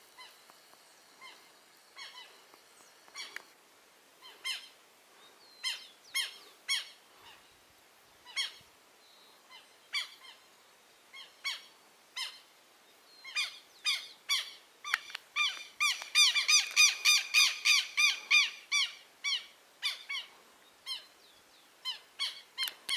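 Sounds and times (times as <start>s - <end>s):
lapwings calling: 1.1s - 3.5s, 4.2s - 4.8s, 8.2s - 8.7s, 13.2s - 21.2s.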